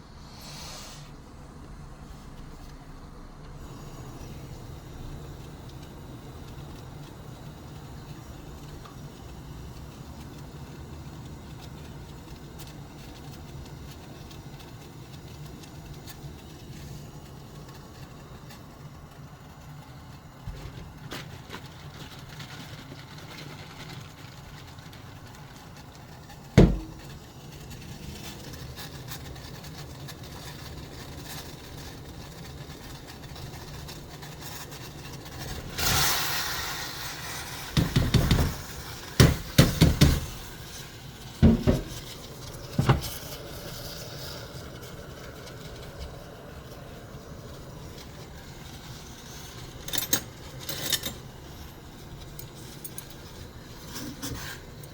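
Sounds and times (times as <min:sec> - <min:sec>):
brief hiss: 0:00.0 - 0:01.3
sharp knock: 0:26.6 - 0:27.0.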